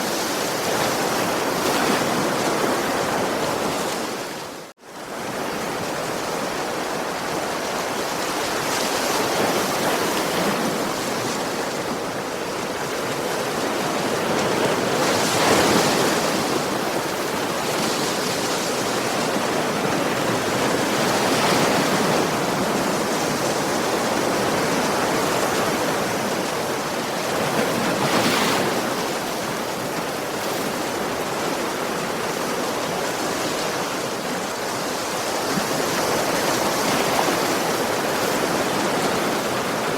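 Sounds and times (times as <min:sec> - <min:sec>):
ocean waves on a beach: 0:00.0 - 0:39.9.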